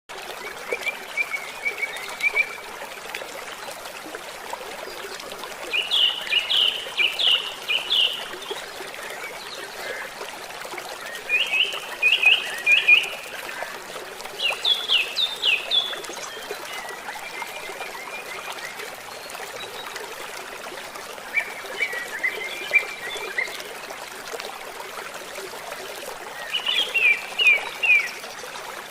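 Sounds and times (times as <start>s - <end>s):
flowing water rushing: 0.1s - 28.9s
songbird singing: 5.7s - 10.0s, 26.4s - 28.3s.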